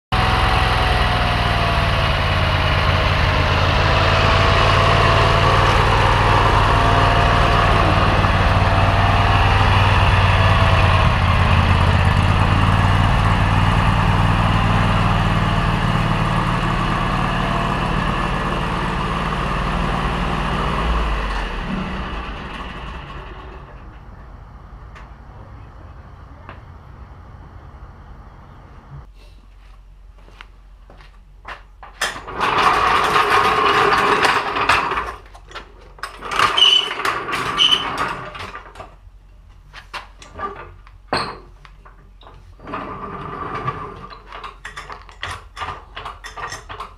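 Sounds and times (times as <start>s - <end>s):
lawn tractor engine running: 0.1s - 25.1s, 32.2s - 35.4s.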